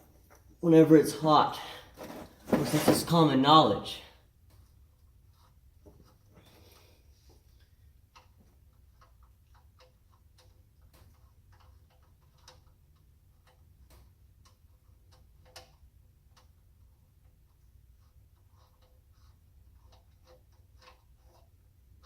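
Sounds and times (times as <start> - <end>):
light clicks and ticks: 4.4 - 16.6, 17.2 - 22.0.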